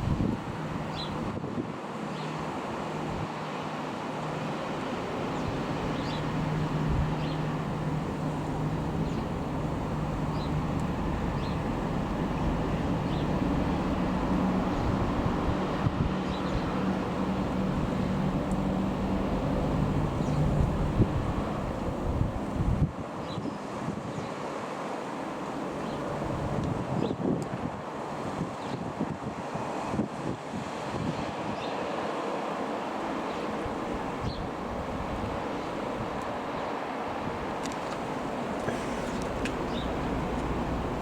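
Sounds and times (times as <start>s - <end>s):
wind buffeting microphone: 0.0s - 1.8s, 5.0s - 24.3s, 25.8s - 31.7s, 33.3s - 36.3s, 37.2s - 41.0s
distant turboprop aircraft drone: 0.0s - 23.4s, 24.2s - 28.8s, 30.8s - 41.0s.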